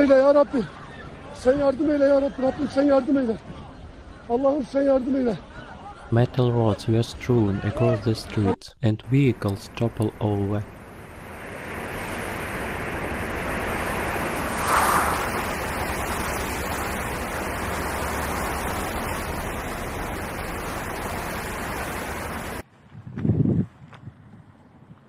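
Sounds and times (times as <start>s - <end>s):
steady rushing noise: 9.1s - 22.6s.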